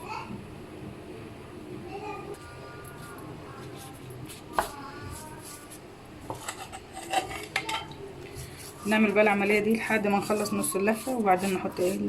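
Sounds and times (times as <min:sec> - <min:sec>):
kitchenware clinking: 0:06.3 - 0:08.1.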